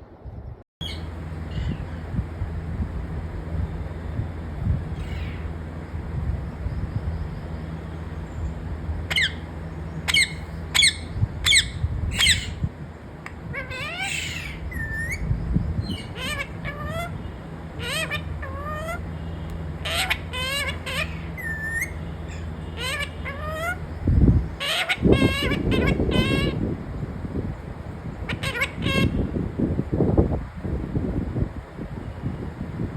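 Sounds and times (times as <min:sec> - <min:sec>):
steady low hum: 0:00.8 - 0:32.9
parrot squawks: 0:05.0 - 0:05.5, 0:09.1 - 0:12.6, 0:13.2 - 0:23.9, 0:24.6 - 0:26.6, 0:28.2 - 0:29.2
parrot whistled calls: 0:09.1 - 0:12.6, 0:13.5 - 0:23.9, 0:24.6 - 0:26.6, 0:28.3 - 0:29.2.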